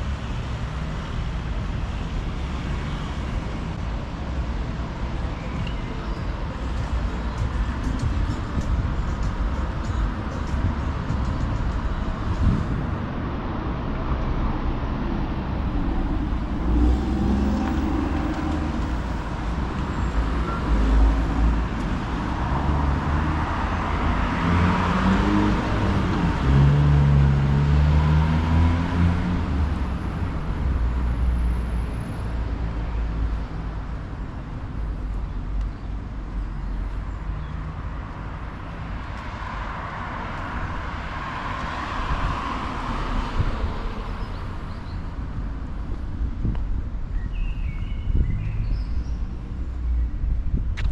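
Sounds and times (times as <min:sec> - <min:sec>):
steady low rumble: 0:06.4 - 0:19.8
cars driving past: 0:06.4 - 0:47.2.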